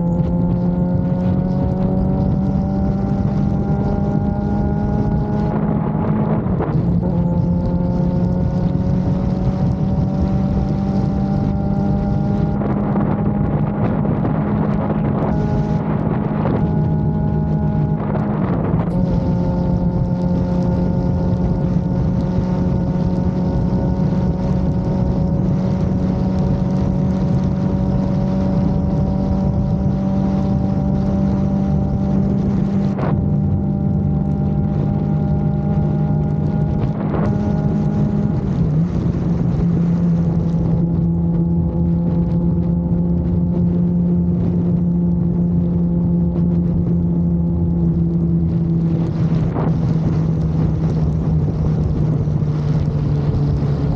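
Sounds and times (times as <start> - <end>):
motorcycle engine running: 0.0 - 53.9
wind rushing over microphone: 0.0 - 53.9.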